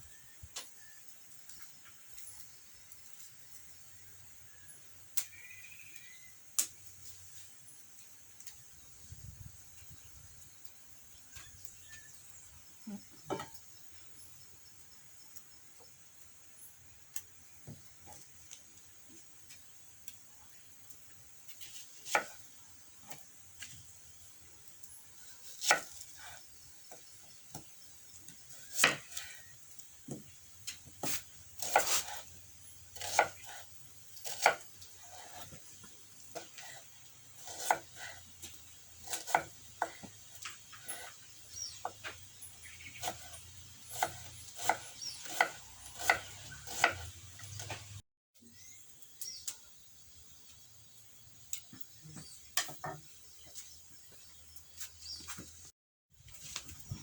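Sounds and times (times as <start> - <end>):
knife chopping on wooden board: 31.0 - 32.2, 33.0 - 33.6, 34.2 - 35.6, 37.4 - 40.2, 43.9 - 47.9.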